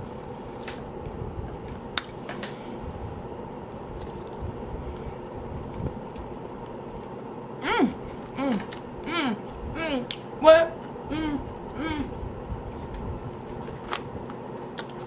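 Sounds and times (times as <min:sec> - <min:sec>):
steady hum: 0:00.0 - 0:15.0
person chewing food: 0:03.8 - 0:05.1.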